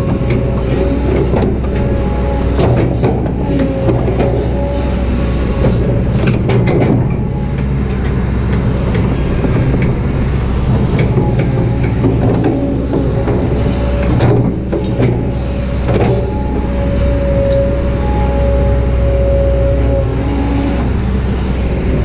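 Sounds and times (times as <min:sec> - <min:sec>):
excavator engine and hydraulics: 0:00.0 - 0:22.0
faint whine: 0:14.9 - 0:22.0.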